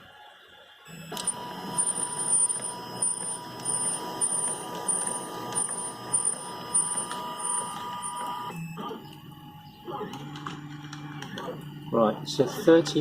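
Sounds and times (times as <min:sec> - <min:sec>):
steady printer hum: 0:00.0 - 0:13.0
stepper motor whines: 0:00.9 - 0:10.5.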